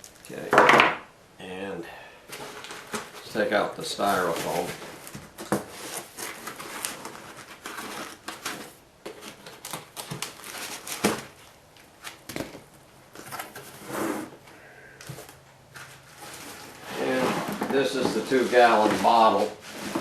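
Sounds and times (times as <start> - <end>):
styrofoam pulled from cardboard box: 16.2 - 20.0.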